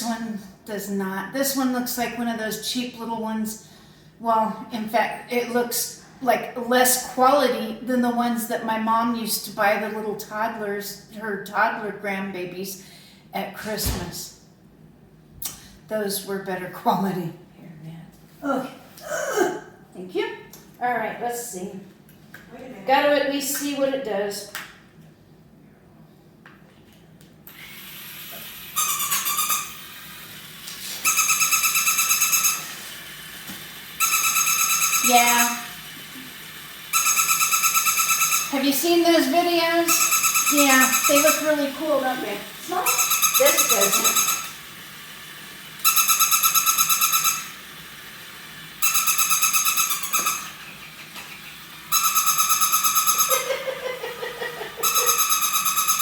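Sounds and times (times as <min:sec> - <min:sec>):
warbling electronic tones: 0:31.0 - 0:32.8, 0:36.9 - 0:38.8, 0:39.8 - 0:44.6, 0:51.9 - 0:53.7, 0:54.7 - 0:56.0.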